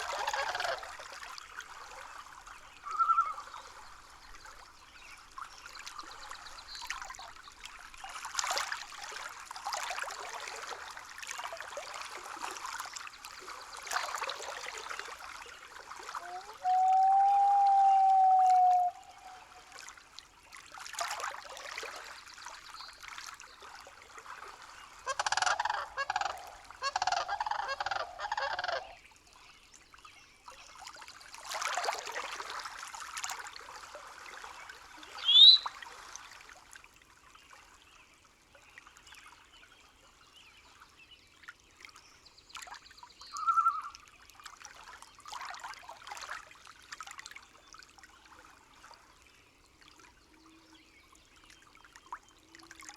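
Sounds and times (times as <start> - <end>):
rising whistle: 16.6 - 19.2
animal calls: 25.1 - 28.9.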